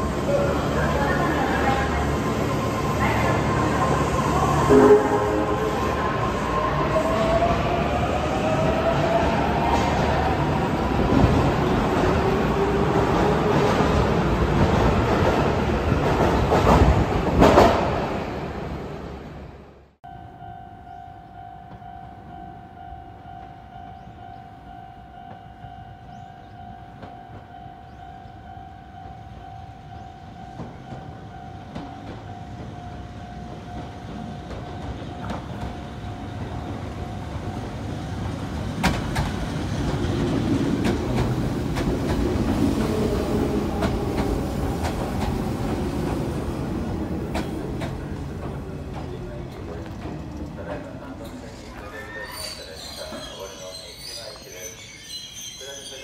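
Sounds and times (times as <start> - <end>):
level-crossing warning tone: 0.0 - 11.4, 20.1 - 38.4, 50.5 - 56.0
electric train rumble: 0.0 - 56.0
wheels and brakes squealing: 51.2 - 56.0.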